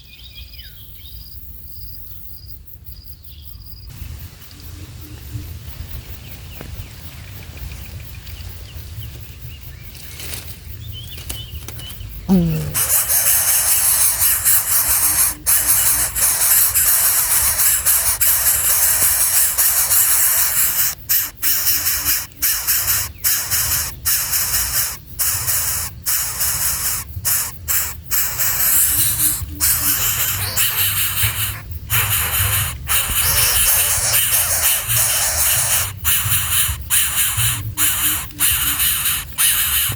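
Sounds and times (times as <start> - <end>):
loud steady hiss: 12.3 - 39.9.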